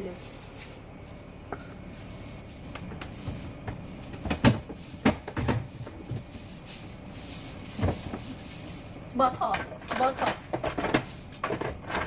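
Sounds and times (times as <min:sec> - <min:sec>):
food containers knocking: 0:02.7 - 0:06.3, 0:09.3 - 0:12.0.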